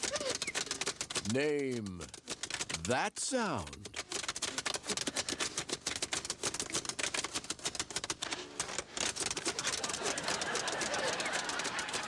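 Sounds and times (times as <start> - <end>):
rapid sharp clicking: 0.0 - 12.0.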